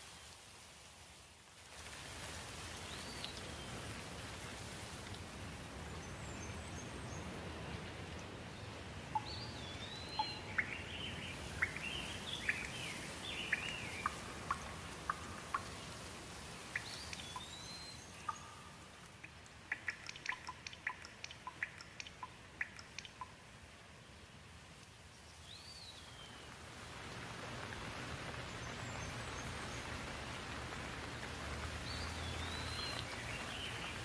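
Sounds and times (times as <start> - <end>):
steady rain: 0.0 - 34.0
water dripping: 1.8 - 23.9, 24.6 - 34.0
birds calling: 9.1 - 16.0, 16.6 - 23.3, 31.8 - 34.0.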